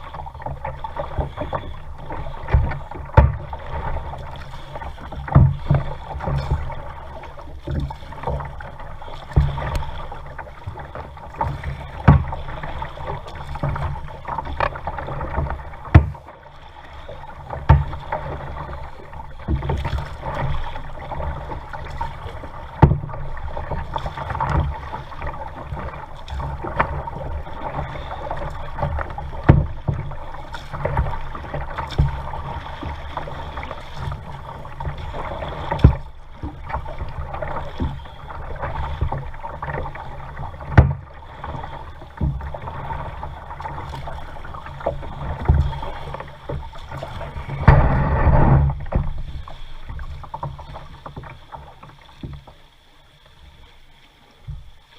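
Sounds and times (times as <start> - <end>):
paddle knocking and splashing: 0.0 - 54.9
water sloshing against kayak hull: 0.0 - 54.9.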